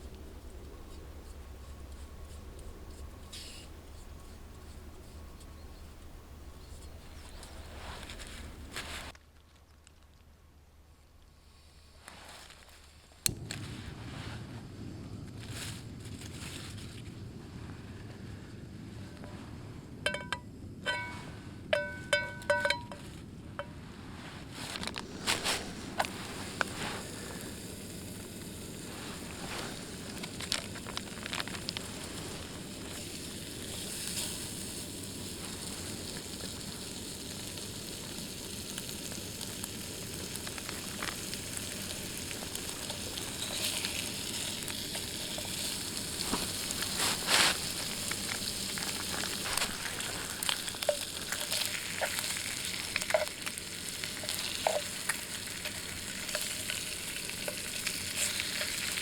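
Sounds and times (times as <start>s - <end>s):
oil popping and crackling: 24.5s - 59.0s
food sizzling in a pan: 25.5s - 59.0s.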